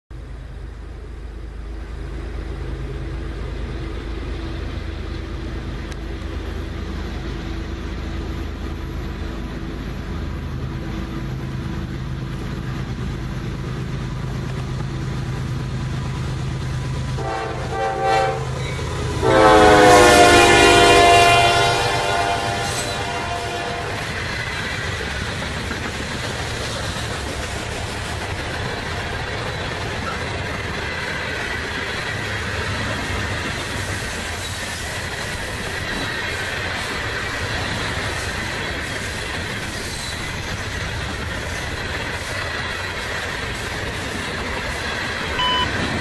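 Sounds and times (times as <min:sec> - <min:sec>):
locomotive engine drone: 0:00.1 - 0:46.0
train air horn blasts: 0:17.2 - 0:24.2.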